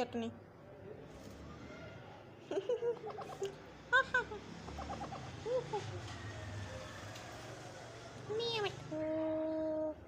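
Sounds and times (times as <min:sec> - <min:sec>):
parrot stuttering chatter: 0:04.6 - 0:05.5.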